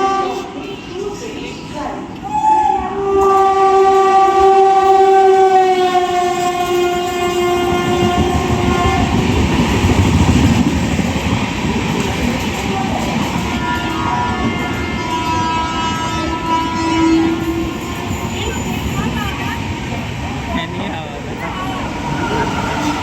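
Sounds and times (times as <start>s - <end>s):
locomotive air horn blast: 0.0s - 0.9s, 2.5s - 9.3s, 13.4s - 19.2s
train wheels clattering on rails: 3.1s - 23.0s.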